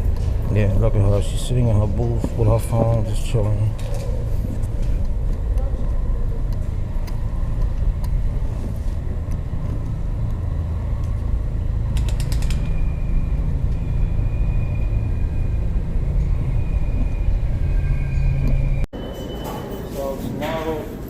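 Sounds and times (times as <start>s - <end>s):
low rumble of subway station: 0.0s - 21.0s
quick clicks: 11.9s - 12.8s
thin high squeal: 13.8s - 20.8s.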